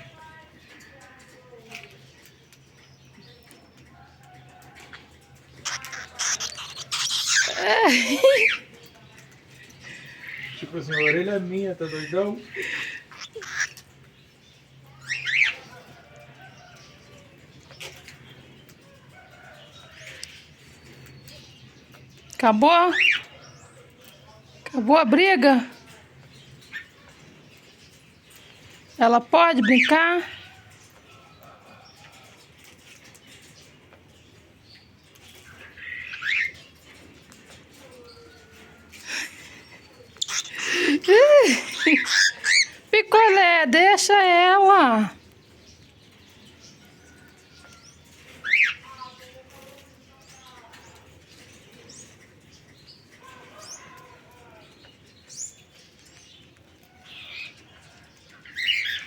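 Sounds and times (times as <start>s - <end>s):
cockatiels chirping: 5.6s - 9.3s, 9.9s - 14.1s, 15.0s - 15.9s, 35.1s - 36.8s, 40.1s - 40.9s, 41.6s - 42.9s, 46.7s - 49.4s, 56.8s - 59.0s.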